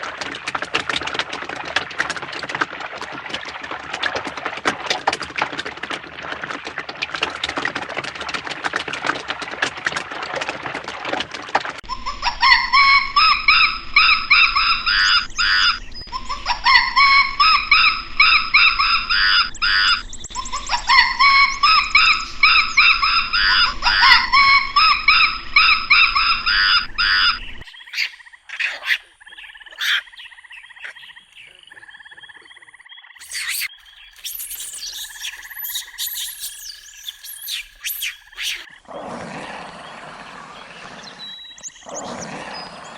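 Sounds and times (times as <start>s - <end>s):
animal calling in rising notes: 33.2s - 38.7s.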